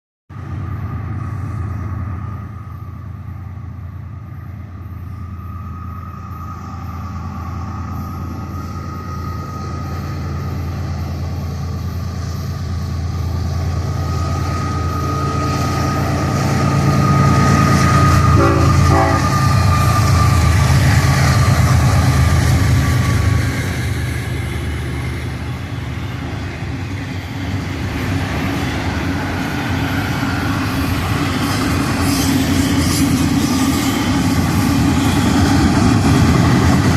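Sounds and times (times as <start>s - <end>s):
diesel locomotive rumble: 0.3s - 36.9s
train air horn: 16.3s - 20.5s.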